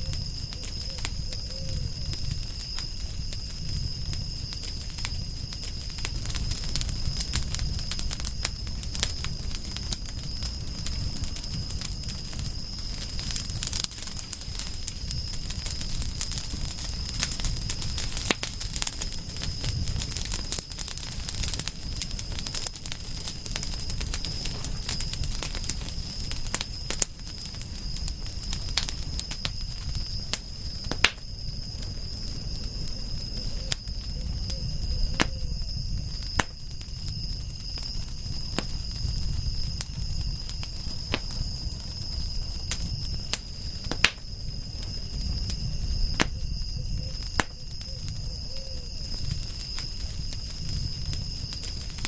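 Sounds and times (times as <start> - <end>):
wood fire crackling and popping: 0.0 - 52.0.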